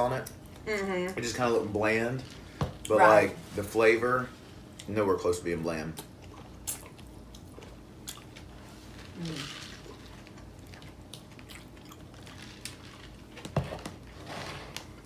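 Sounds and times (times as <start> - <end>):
people chewing food: 5.8 - 13.6.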